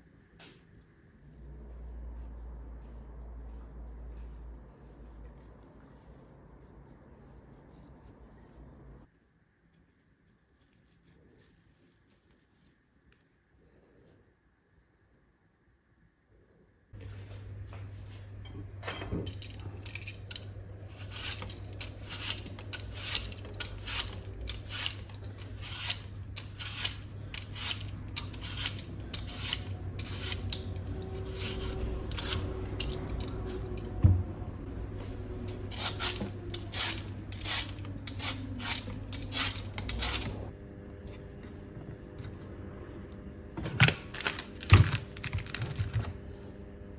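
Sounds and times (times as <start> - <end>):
crisp cutting strokes: 20.9 - 33.8.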